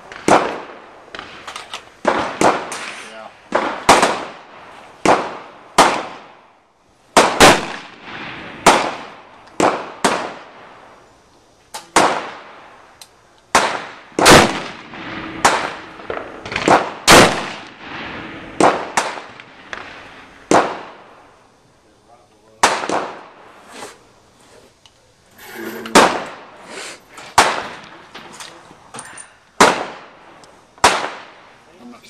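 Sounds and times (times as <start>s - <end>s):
gunshots with echo: 13.5s - 21.0s, 25.9s - 26.5s.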